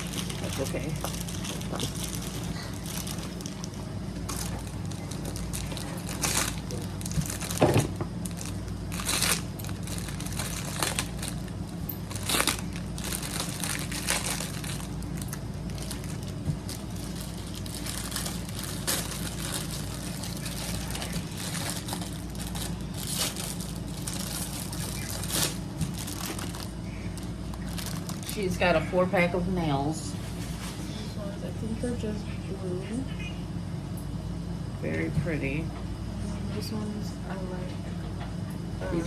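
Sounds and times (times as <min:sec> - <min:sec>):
plastic packaging crinkling: 0:00.0 - 0:28.7
low background hum: 0:00.0 - 0:39.0.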